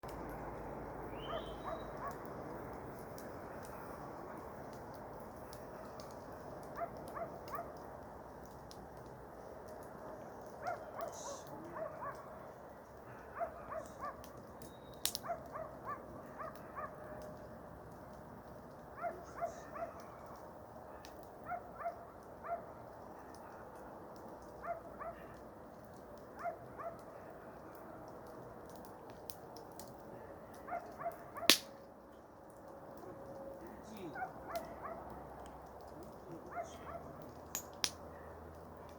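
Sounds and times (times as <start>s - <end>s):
sharp crack: 31.4s - 31.9s, 37.2s - 38.1s.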